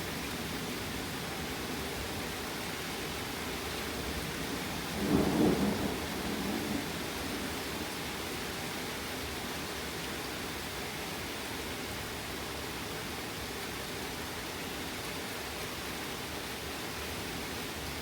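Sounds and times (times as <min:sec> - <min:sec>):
heavy rain falling: 0:00.1 - 0:09.7
thunder rumbling: 0:05.0 - 0:07.4.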